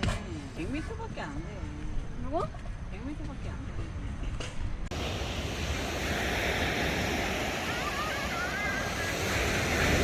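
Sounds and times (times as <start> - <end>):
sea waves breaking on shore: 4.9 - 10.0.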